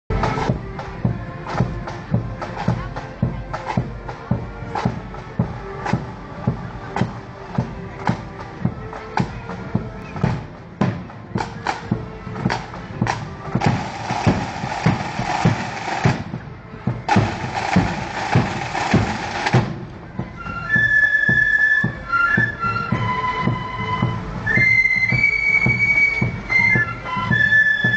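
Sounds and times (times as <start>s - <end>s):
drum rolls: 0.1s - 27.9s
marching drums beating: 0.1s - 27.9s
flutes playing: 13.1s - 16.3s, 17.1s - 27.9s.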